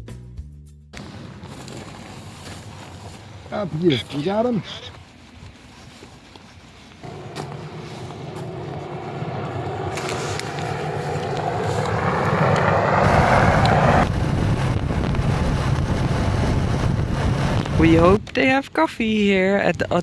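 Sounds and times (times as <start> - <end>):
motor vehicle running: 6.8 - 18.3.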